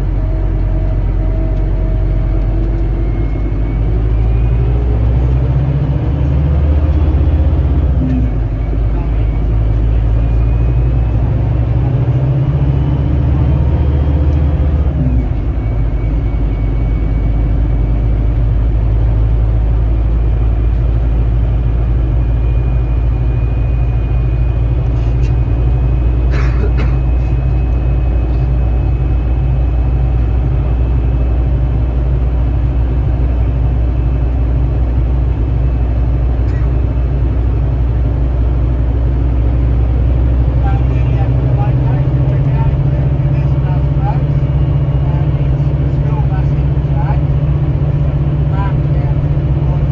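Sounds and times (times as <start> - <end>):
bus engine running: 0.0 - 49.9.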